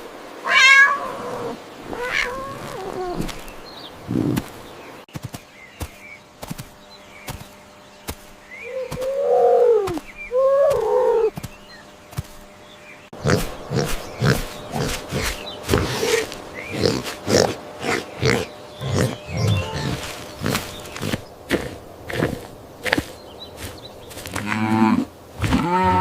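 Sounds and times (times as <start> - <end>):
pig grunting: 4.0 - 4.5, 13.2 - 26.0
faint bird chirps: 6.9 - 17.1, 17.9 - 21.3
loud drawn-out animal calls: 13.2 - 23.7.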